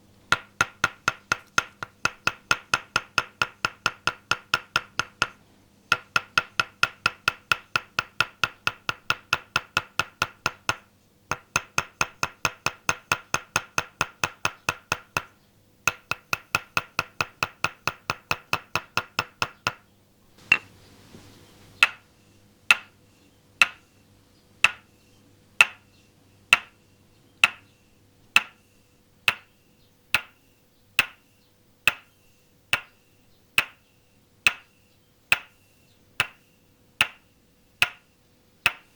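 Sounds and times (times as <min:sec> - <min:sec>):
wooden mallet knocking on peg: 0:20.4 - 0:20.7, 0:21.8 - 0:22.0, 0:22.7 - 0:22.9, 0:23.6 - 0:23.8, 0:24.6 - 0:24.8, 0:25.6 - 0:25.8, 0:27.4 - 0:27.6, 0:28.4 - 0:28.6, 0:29.3 - 0:29.5, 0:33.6 - 0:33.8, 0:34.5 - 0:34.7, 0:35.3 - 0:35.6, 0:36.2 - 0:36.4, 0:37.0 - 0:37.2, 0:37.8 - 0:38.0, 0:38.6 - 0:38.9
rustle: 0:20.4 - 0:22.5.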